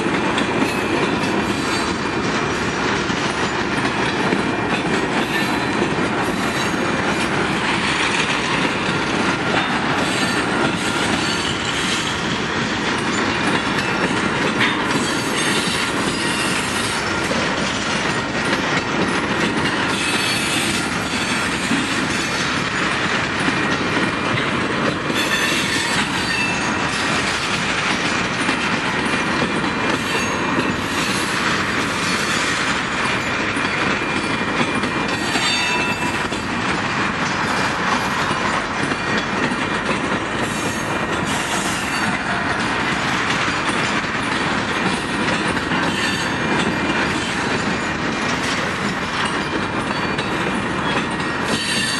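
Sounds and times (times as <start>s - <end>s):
clickety-clack over rail joints: 0.0s - 51.9s
train wheels rumbling on rail: 0.0s - 51.9s
high wheel squeal: 25.2s - 26.8s.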